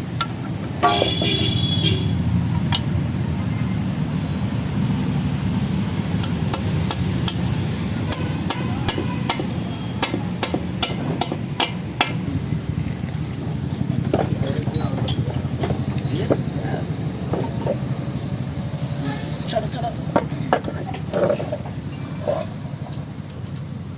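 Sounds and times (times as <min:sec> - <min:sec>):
hammer striking metal: 0:06.2 - 0:12.4.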